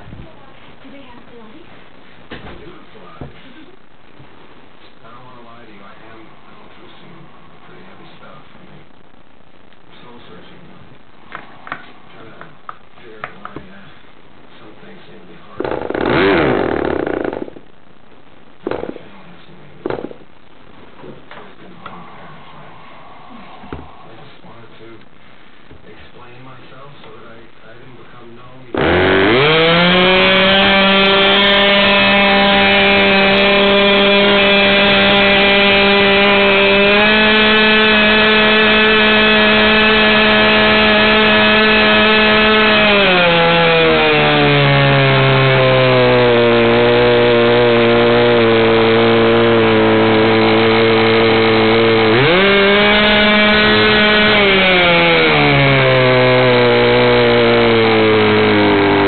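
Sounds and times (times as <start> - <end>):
model glow engine running: 15.6 - 17.5, 28.8 - 59.0.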